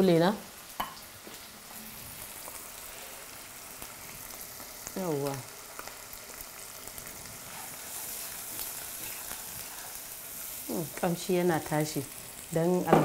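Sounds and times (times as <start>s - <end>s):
onions sizzling in a frying pan: 0.0s - 13.0s
wooden spatula stirring: 7.4s - 10.0s.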